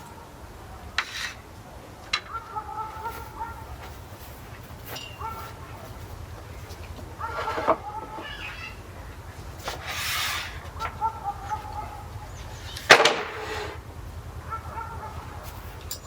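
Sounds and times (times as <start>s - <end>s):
faint animal calls: 7.1s - 12.8s
brush swishing across planks: 9.6s - 10.7s.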